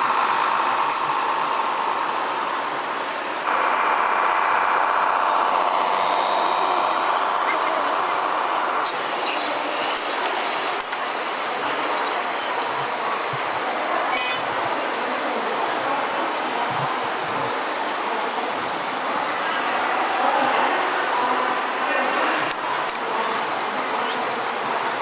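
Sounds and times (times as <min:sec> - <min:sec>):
model truck motor whine: 0:00.0 - 0:25.0
hissing: 0:03.5 - 0:25.0
sharp clicks: 0:08.8 - 0:15.0, 0:22.1 - 0:25.0.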